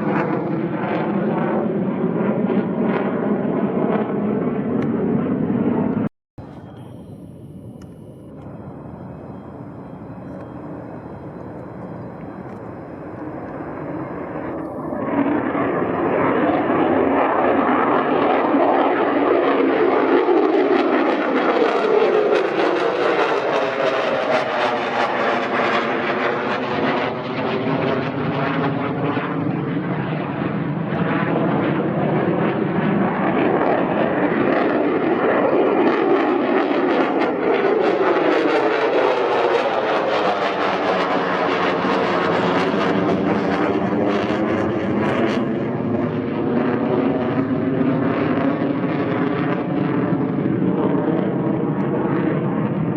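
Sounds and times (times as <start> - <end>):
fighter jet engine roar: 0.0 - 52.9
jet passing whoosh: 5.0 - 18.0.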